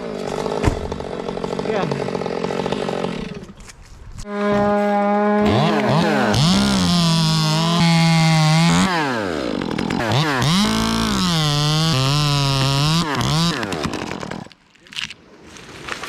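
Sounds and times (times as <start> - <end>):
chainsaw cutting wood: 0.0 - 3.8, 4.5 - 14.6
second chainsaw high rev: 5.3 - 14.5.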